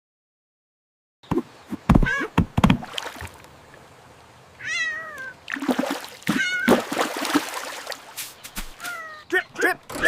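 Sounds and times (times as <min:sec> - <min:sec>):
cat meowing: 0:02.0 - 0:02.3, 0:04.6 - 0:05.4, 0:06.3 - 0:06.7, 0:08.8 - 0:09.3.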